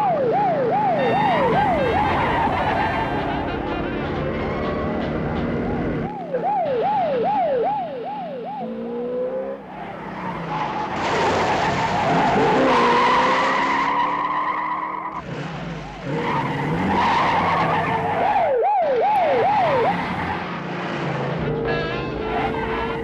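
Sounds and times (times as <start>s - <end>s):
car engines running hard: 0.0s - 23.0s
police siren wailing: 0.0s - 23.0s.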